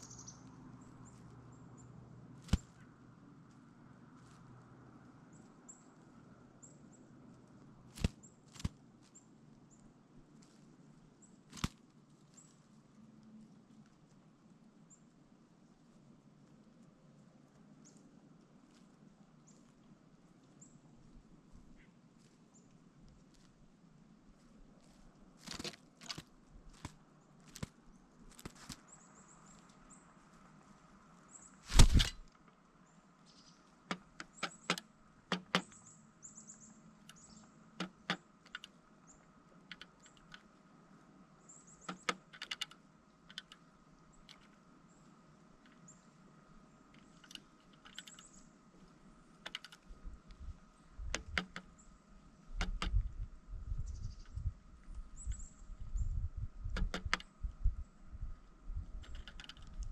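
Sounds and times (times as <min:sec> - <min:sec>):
woodpecker tapping and knocking: 0:33.8 - 0:35.9, 0:37.0 - 0:38.8, 0:39.6 - 0:40.6, 0:41.7 - 0:44.6, 0:46.9 - 0:51.8, 0:52.5 - 0:53.3, 0:54.0 - 0:57.8, 0:58.8 - 0:59.9.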